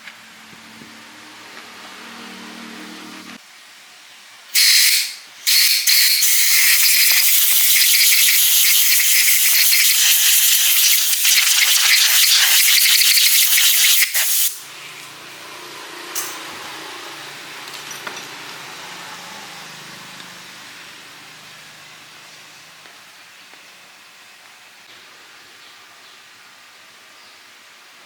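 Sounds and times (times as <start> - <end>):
pressurised jet hissing: 4.6 - 14.6.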